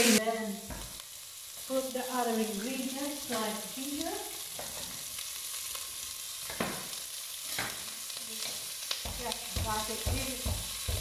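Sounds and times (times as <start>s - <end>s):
onions sizzling in fat: 0.0s - 11.0s
pestle pounding in mortar: 9.1s - 11.0s.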